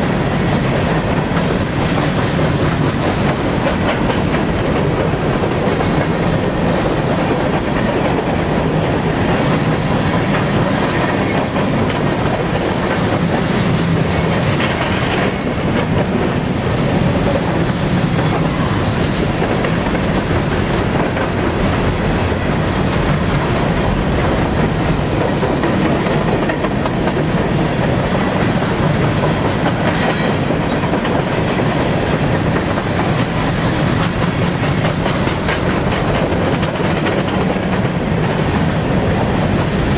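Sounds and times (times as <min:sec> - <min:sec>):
freight train wheels clacking: 0:00.0 - 0:39.9.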